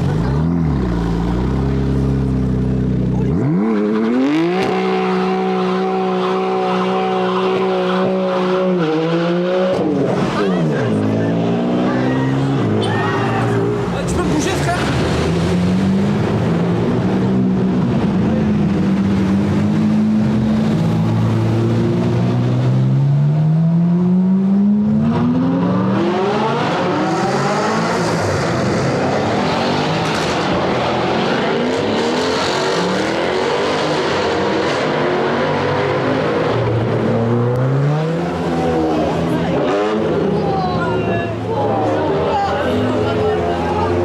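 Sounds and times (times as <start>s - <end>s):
sports car engines revving: 0.0s - 44.0s.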